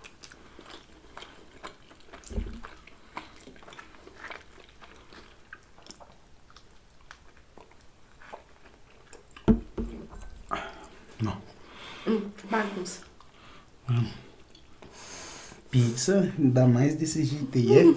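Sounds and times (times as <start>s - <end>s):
pizza being bitten and chewed: 0.0s - 11.2s
heavier thump: 9.5s - 10.0s.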